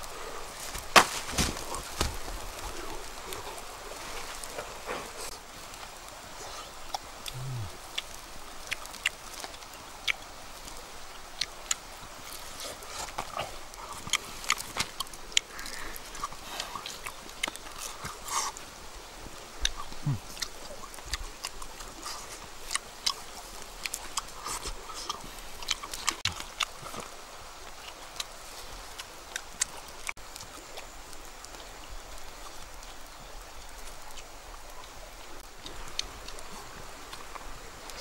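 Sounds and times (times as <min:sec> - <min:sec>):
chewing with wet clicks: 0:05.7 - 0:18.7, 0:19.4 - 0:38.0
lip smacks: 0:06.4 - 0:10.4.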